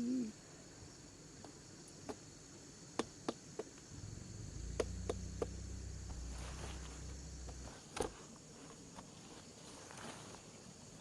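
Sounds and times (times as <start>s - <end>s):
insects chirring: 0.0s - 11.0s
low rumble: 3.9s - 7.9s.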